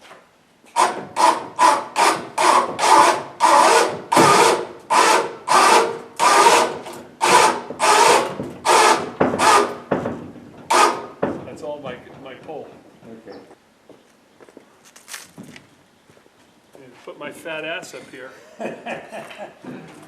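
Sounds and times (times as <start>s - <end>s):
hand ratchet puller rasping: 0.7s - 10.0s, 10.6s - 11.2s.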